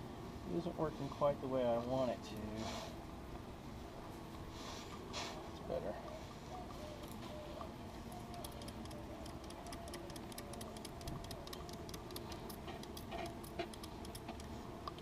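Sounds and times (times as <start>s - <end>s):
honeybees humming: 6.0s - 15.0s
light irregular clicks: 7.0s - 15.0s.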